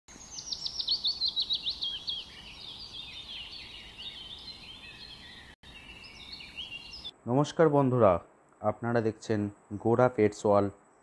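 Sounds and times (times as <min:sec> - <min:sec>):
birds chirping and twittering: 0:00.1 - 0:07.2
sharp down-slurred bird chirps: 0:00.1 - 0:07.2
outdoor ambience hiss: 0:00.1 - 0:11.0.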